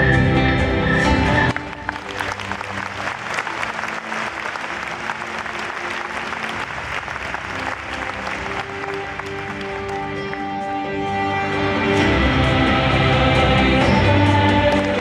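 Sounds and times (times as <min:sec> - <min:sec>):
audience applauding: 0:01.3 - 0:10.7, 0:14.4 - 0:15.0.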